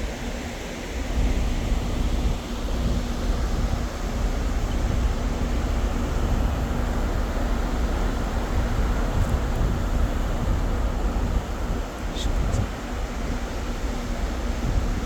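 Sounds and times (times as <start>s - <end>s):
wind noise: 8.5s - 12.8s.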